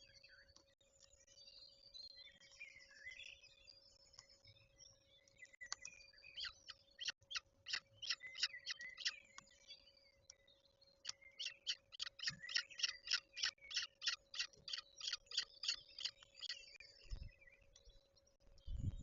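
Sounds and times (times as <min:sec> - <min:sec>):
birds chirping and calling: 0:05.4 - 0:10.0, 0:11.0 - 0:18.0.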